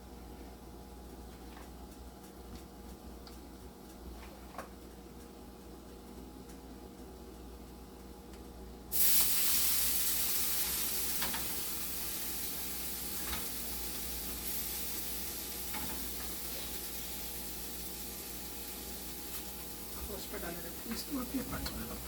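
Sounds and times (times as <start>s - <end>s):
oil sizzling in frying pan: 8.9s - 22.0s.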